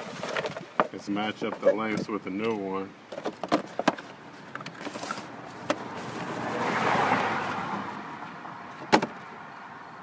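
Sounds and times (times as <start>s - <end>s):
vehicle passing: 5.4s - 10.0s.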